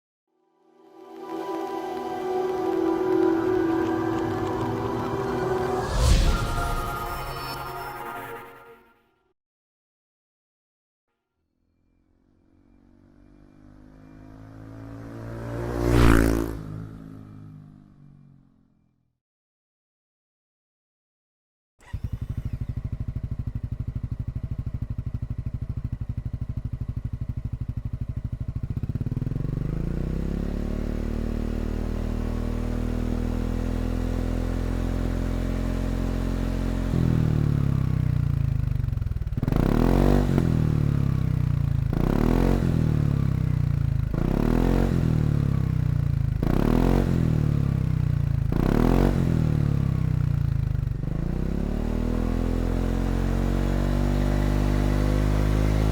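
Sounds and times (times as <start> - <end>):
scooter engine revving: 21.8 - 55.9.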